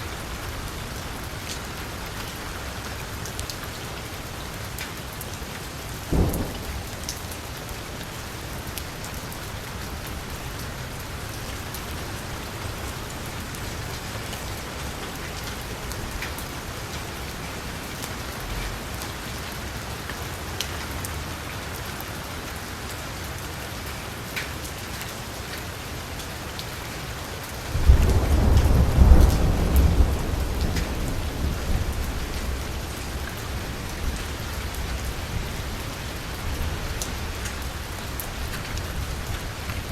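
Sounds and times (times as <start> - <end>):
heavy rain on car roof: 0.0 - 39.9
thunder rumble: 6.1 - 7.6, 27.7 - 37.3.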